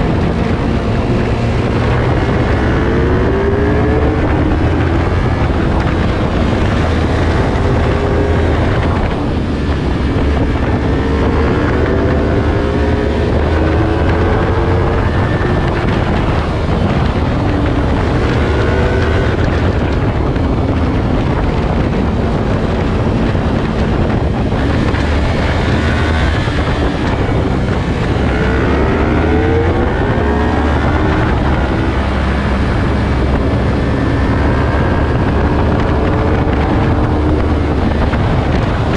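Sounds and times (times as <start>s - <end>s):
motorcycle engine revving: 0.0s - 38.9s
wind noise on microphone: 0.0s - 38.9s.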